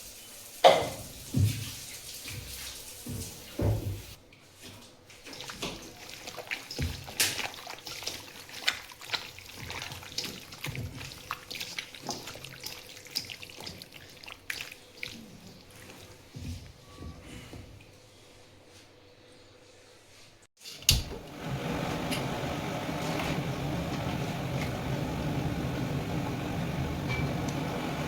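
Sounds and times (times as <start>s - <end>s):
water trickling and splashing: 0.0s - 4.2s, 5.1s - 16.4s.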